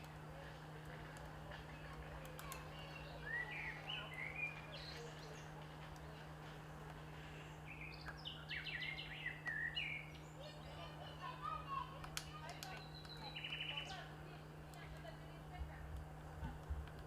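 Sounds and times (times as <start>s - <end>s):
steady low hum: 0.0s - 17.0s
small bird chirping: 7.4s - 10.8s, 12.3s - 14.1s.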